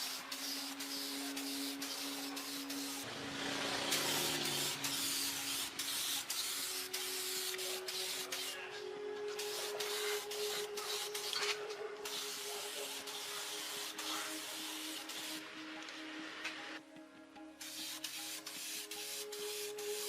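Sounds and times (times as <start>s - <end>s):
hissing spray: 0.0s - 8.7s, 9.3s - 15.5s, 17.6s - 20.0s
faint sustained tones: 6.7s - 16.8s.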